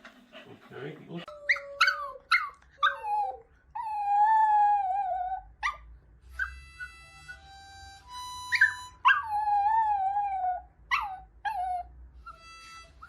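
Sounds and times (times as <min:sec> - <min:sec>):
dog whining and howling: 0:01.3 - 0:05.8, 0:08.4 - 0:13.0.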